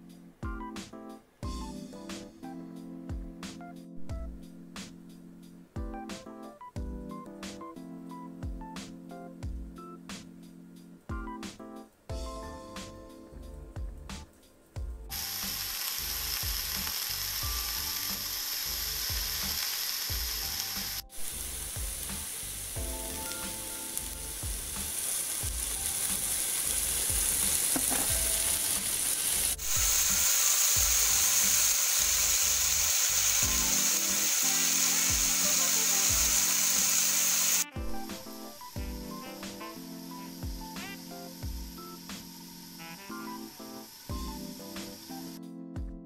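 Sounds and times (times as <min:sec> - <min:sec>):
vegetables sizzling in oil: 0:15.1 - 0:45.4.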